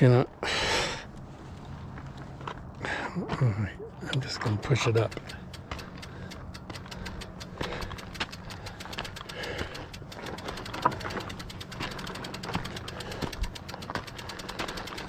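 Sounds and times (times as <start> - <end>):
bicycle freewheel ticking: 4.7 - 15.0.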